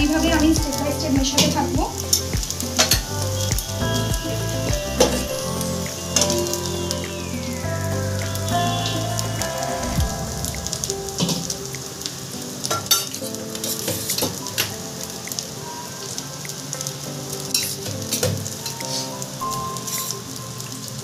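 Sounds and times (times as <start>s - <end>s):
food sizzling in butter: 11.2s - 21.0s.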